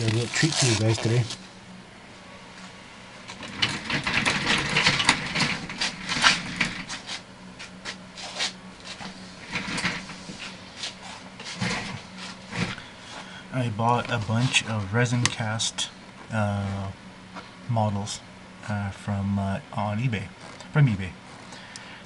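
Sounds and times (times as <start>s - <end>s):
handling rustles and clicks: 0.0s - 1.4s.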